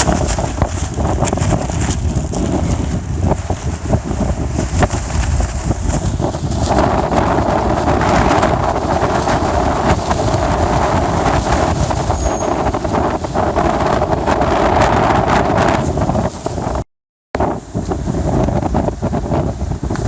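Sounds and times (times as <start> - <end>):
blizzard wind buffeting microphone: 0.0 - 16.8, 17.4 - 20.0.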